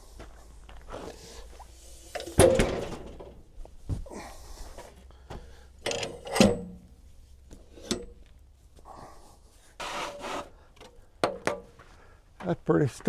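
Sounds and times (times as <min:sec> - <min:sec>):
wood rubbing scrape: 0:09.8 - 0:10.6.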